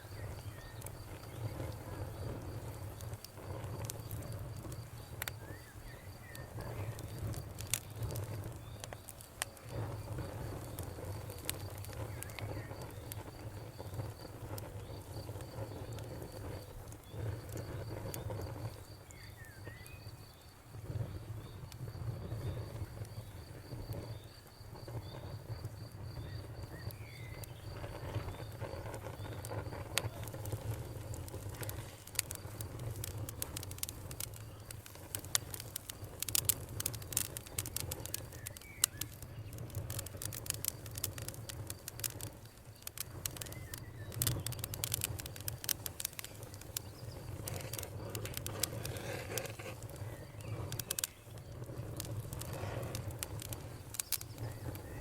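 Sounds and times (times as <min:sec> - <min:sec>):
wood fire crackling: 0:00.0 - 0:55.0
sharp pops: 0:26.1 - 0:55.0.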